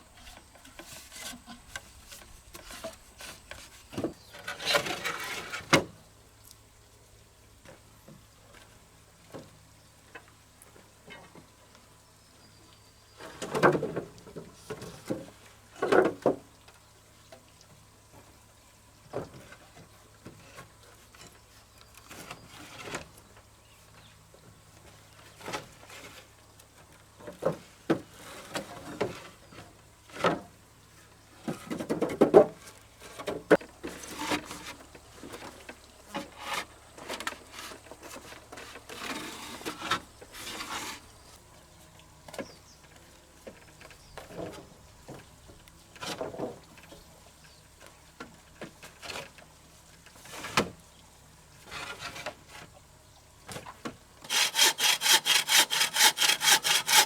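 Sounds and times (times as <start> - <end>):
knocks and scrapes of manual work: 0.0 - 6.0, 13.2 - 16.5, 19.1 - 23.5, 24.1 - 50.8, 51.6 - 52.9, 53.5 - 57.0.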